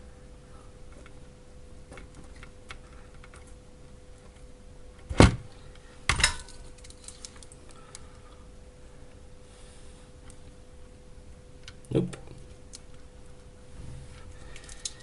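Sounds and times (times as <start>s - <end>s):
faint steady hum: 0.0s - 15.0s
tools and wires handled on workbench: 5.7s - 8.1s, 13.8s - 15.0s.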